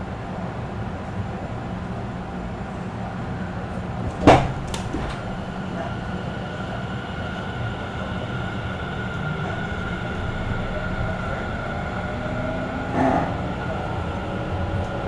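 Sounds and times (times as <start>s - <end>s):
train wheels and motors rumbling: 0.0s - 15.0s
train motor whine: 3.6s - 15.0s.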